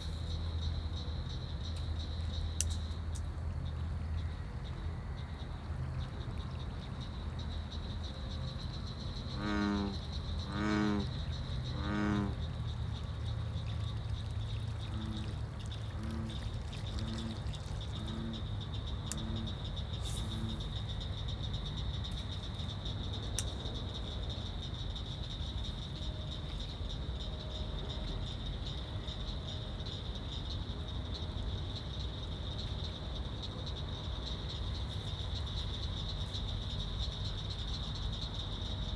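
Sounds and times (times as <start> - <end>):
high insect trill: 0.0 - 38.9
bullfrogs calling: 3.7 - 38.9.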